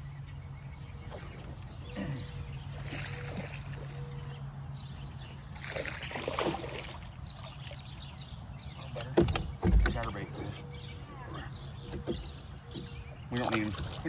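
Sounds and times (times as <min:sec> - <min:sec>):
water splashing around boat: 0:00.8 - 0:14.0.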